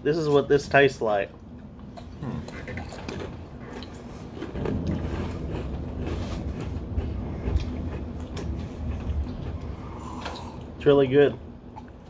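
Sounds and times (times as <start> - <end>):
low rumble: 1.0 - 12.0
rice crackers crunching: 2.8 - 10.8.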